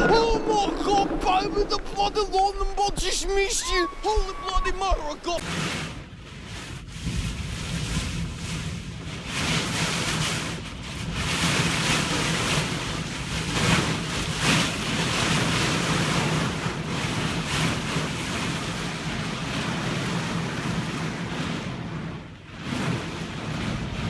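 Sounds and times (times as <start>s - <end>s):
low hum: 0.0s - 5.4s
wind buffeting microphone: 0.0s - 24.0s.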